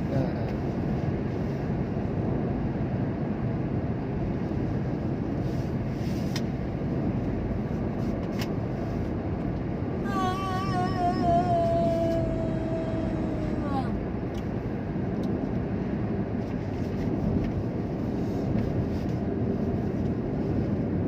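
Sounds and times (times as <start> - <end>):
vehicle driving on road: 0.0 - 21.0.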